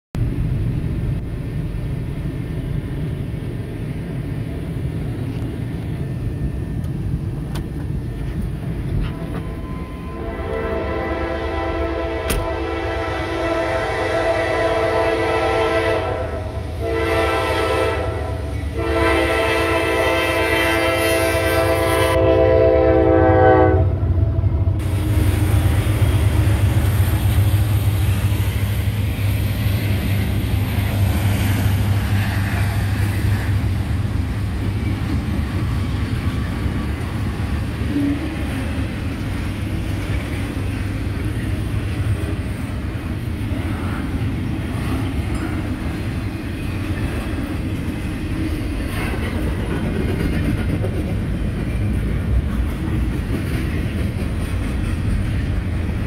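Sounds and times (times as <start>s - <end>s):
train horn blasts: 9.1s - 25.3s
locomotive engine rumble: 22.2s - 56.0s.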